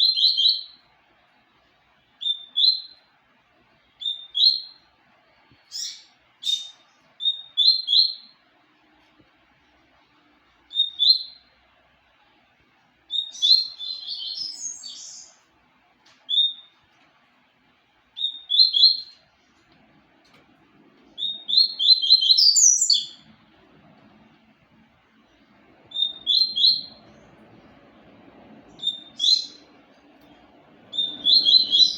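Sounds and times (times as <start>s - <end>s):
bird singing high chirps: 0.0s - 0.8s, 2.2s - 3.1s, 4.0s - 4.8s, 5.6s - 8.4s, 10.7s - 11.5s, 13.1s - 15.4s, 16.3s - 16.8s, 18.2s - 19.2s, 21.2s - 23.3s, 25.9s - 27.3s, 28.7s - 29.8s, 30.9s - 31.9s.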